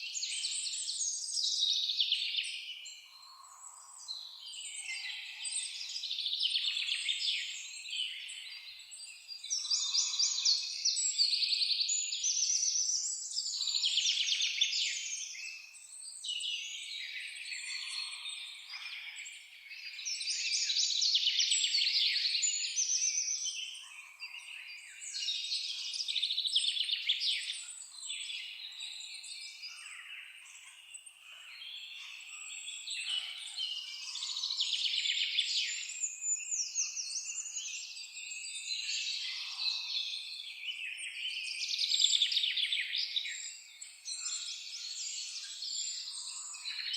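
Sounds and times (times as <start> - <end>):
songbirds chirping and trilling: 0.0 - 46.9.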